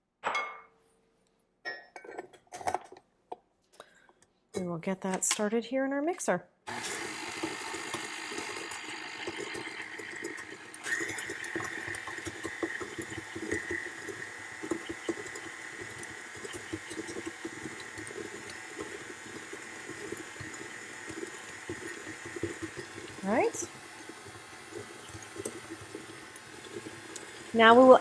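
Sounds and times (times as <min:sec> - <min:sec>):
electric mixer beating butter: 0:06.7 - 0:28.0
high mixer whine: 0:06.7 - 0:28.0.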